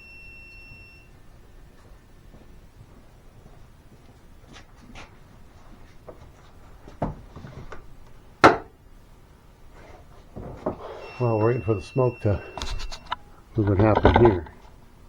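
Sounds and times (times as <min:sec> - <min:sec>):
knocks and clicks: 0:12.6 - 0:14.6.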